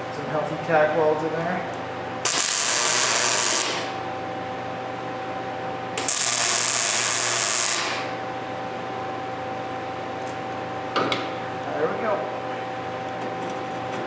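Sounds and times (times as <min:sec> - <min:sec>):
steady hum: 0:00.0 - 0:14.0
crackling welding arc hiss: 0:02.2 - 0:04.0, 0:06.0 - 0:08.2.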